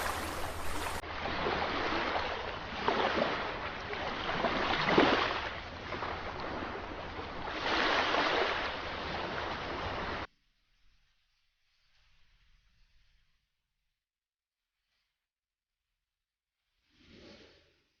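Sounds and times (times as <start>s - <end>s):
sea waves breaking: 0.0s - 10.3s.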